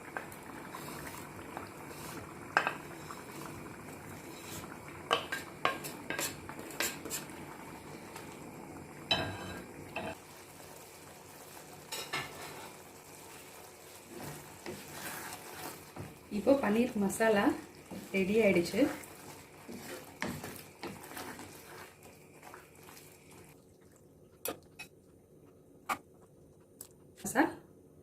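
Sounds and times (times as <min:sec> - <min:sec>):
gravy simmering: 0:00.0 - 0:27.1
spoon knocking and scraping a pan: 0:02.5 - 0:03.0, 0:04.4 - 0:07.3, 0:09.1 - 0:10.2, 0:11.9 - 0:12.8, 0:14.1 - 0:16.2, 0:19.6 - 0:21.9.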